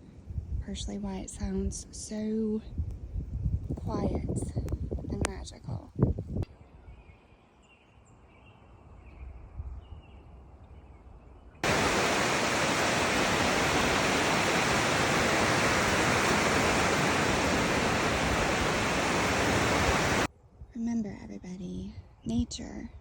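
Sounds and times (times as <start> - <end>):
loud steady rushing noise: 11.6 - 20.3.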